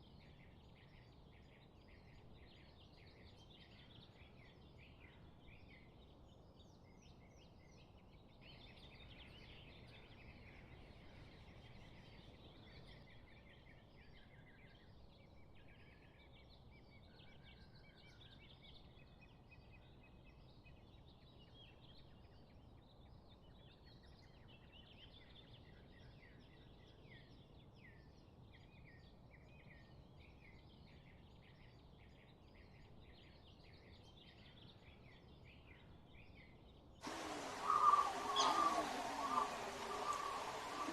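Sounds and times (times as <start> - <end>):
small birds chirping: 37.0 - 40.9
low background rumble: 37.1 - 40.9.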